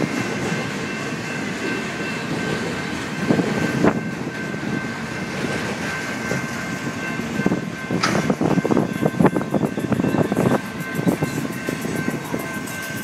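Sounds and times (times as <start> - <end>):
steel wheels rumbling on rail: 0.0 - 13.0
wheels clacking over rail joints: 0.0 - 13.0.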